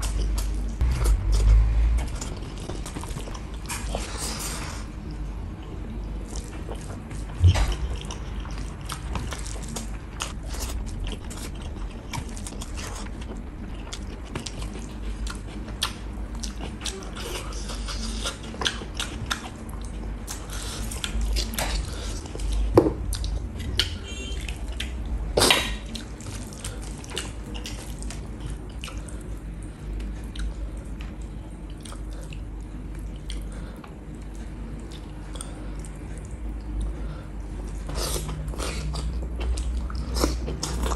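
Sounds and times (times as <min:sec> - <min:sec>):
wet chewing and lip smacking: 0:06.2 - 0:37.0.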